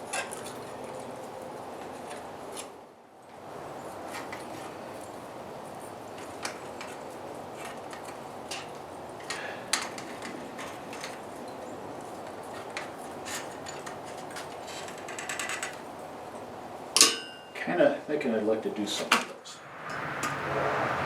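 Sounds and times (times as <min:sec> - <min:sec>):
steady rushing noise: 0:18.8 - 0:21.0.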